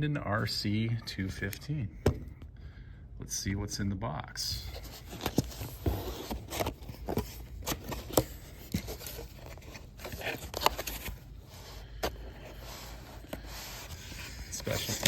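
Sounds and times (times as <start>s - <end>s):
packaging scraping and rustling: 4.8s - 15.0s.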